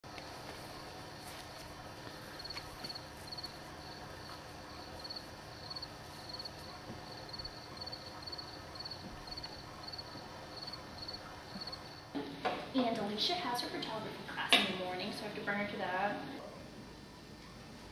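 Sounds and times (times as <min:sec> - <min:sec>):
low background hiss: 0:00.2 - 0:17.9
cricket chirping: 0:02.3 - 0:12.1.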